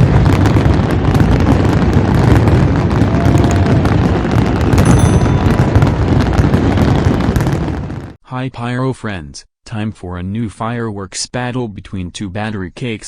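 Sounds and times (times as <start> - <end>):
fireworks bangs and booms: 0.0 - 8.2.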